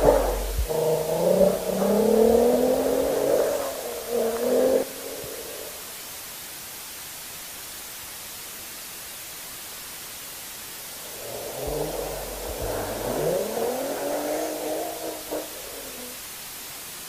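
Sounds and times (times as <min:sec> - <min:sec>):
engine revving: 0:00.0 - 0:05.8, 0:11.0 - 0:16.2
recording hiss: 0:00.0 - 0:17.0.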